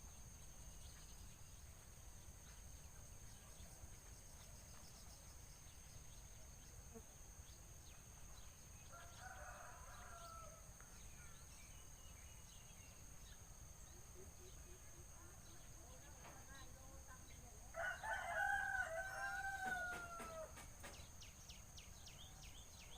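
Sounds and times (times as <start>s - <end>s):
distant rooster crowing: 8.9s - 10.8s, 17.7s - 21.0s.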